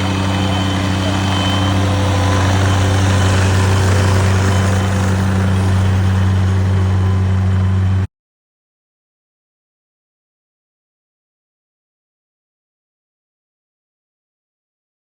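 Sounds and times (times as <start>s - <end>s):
engine humming with low drone: 0.0s - 8.1s.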